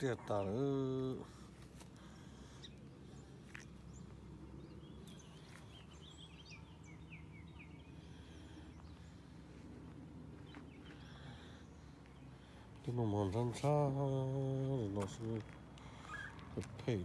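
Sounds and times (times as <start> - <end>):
bird chirping: 2.0 - 17.0.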